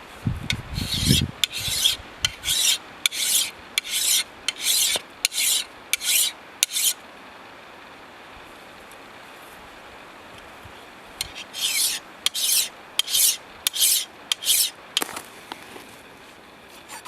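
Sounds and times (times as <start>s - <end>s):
blade scraping bark off log: 0.8s - 7.0s, 11.2s - 15.3s.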